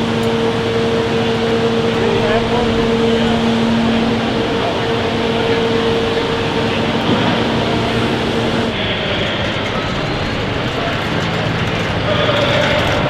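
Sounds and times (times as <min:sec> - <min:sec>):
loud engine hum: 0:00.0 - 0:13.0.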